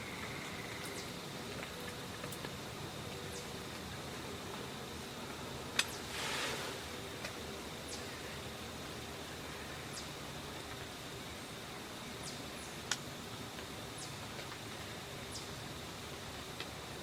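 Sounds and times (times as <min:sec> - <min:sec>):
steady hiss: 0:00.0 - 0:17.0
short rustle: 0:06.0 - 0:06.9.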